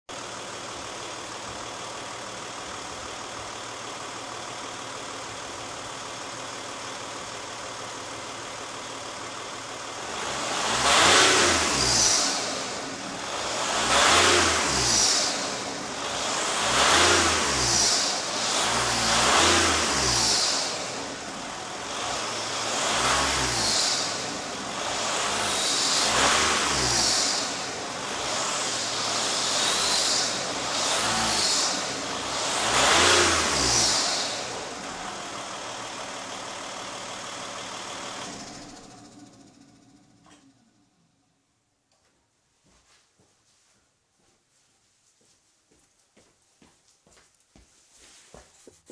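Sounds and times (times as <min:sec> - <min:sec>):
diesel engine revving: 0:00.2 - 0:40.6
turbocharger whistling: 0:21.9 - 0:34.4.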